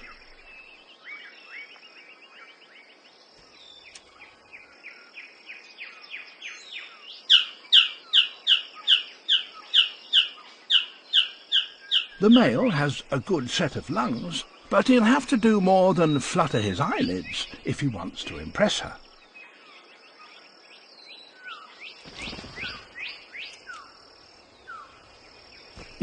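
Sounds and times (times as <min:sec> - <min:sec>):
jungle insects whining: 0:00.0 - 0:26.0
bird calling descending notes: 0:09.3 - 0:19.0.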